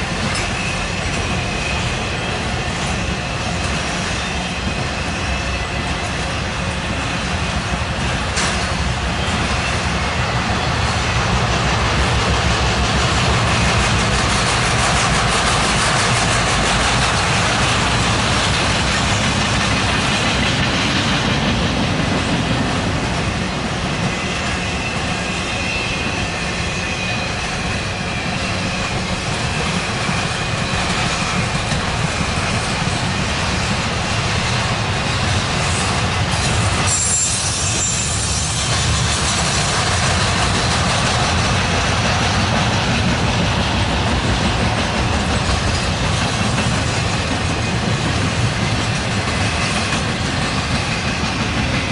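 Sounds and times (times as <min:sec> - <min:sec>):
train wheels rumbling on rail: 0:00.0 - 0:51.9
high wheel squeal: 0:24.1 - 0:31.0, 0:35.7 - 0:39.8.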